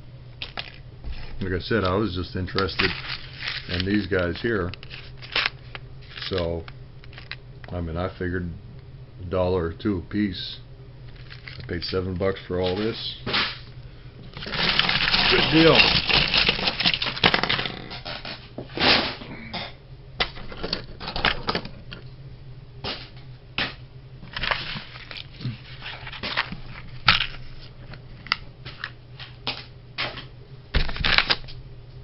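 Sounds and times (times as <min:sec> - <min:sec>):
faint steady hum: 0:00.0 - 0:32.0
small parts clicking and tapping: 0:01.8 - 0:07.4.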